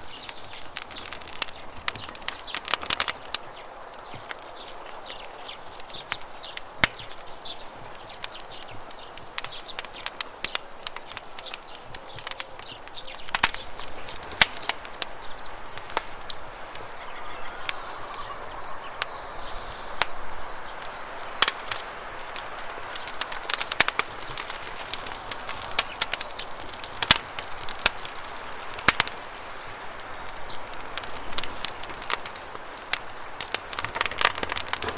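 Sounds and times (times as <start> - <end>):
campfire crackling and popping: 0.0 - 34.9
bird's thin high call: 15.6 - 21.3.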